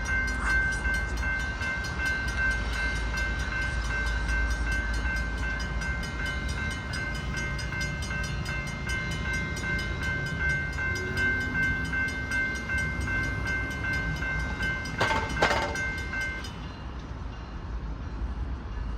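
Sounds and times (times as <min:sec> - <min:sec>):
crossing bell ringing: 0:00.0 - 0:16.8
short clatter: 0:15.0 - 0:16.0.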